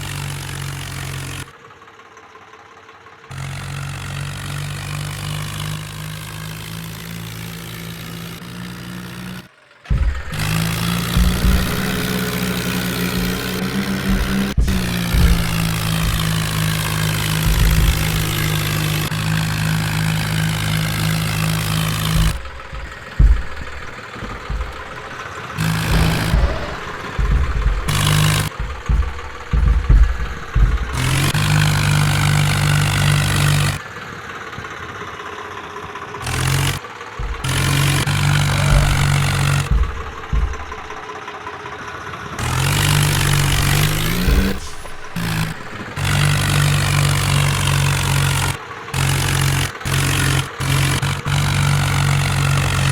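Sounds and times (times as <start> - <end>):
tractor diesel engine running: 0.0 - 52.9
clattering: 7.0 - 33.8, 42.4 - 48.6.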